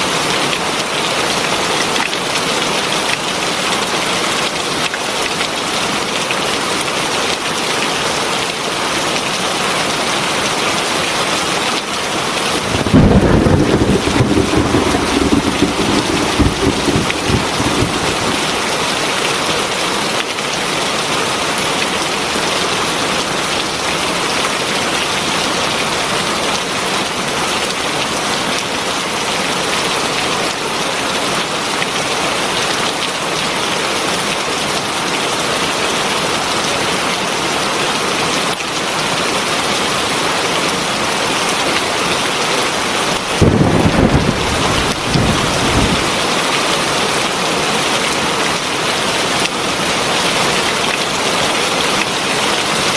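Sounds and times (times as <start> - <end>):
heavy rain: 0.0 - 52.9
thunder rumble: 12.5 - 19.5, 43.2 - 46.5.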